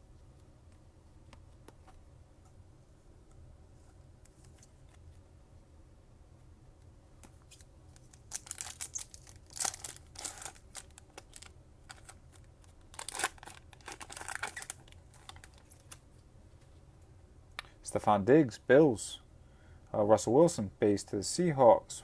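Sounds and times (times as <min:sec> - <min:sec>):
foil wrapper tearing and crinkling: 0:08.0 - 0:12.2, 0:12.9 - 0:16.0.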